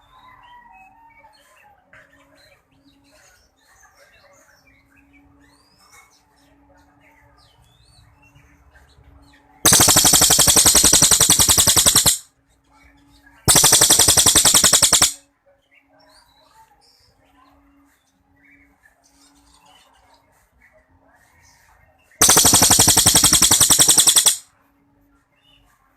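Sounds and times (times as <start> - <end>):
songbird rapid-fire trills: 9.7 - 12.2, 13.5 - 15.2, 22.2 - 24.4.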